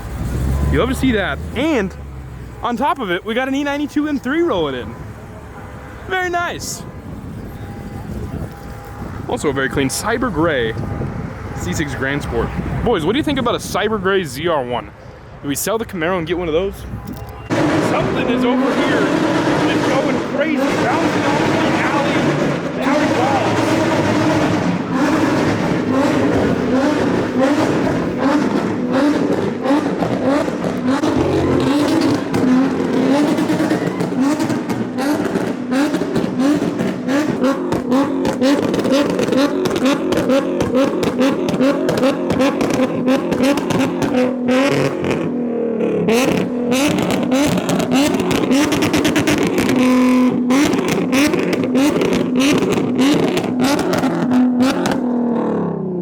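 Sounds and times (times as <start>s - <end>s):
exhaust pops and crackles: 7.0s - 14.4s, 17.0s - 45.4s, 46.0s - 55.6s
car engine revving hard: 17.5s - 56.0s.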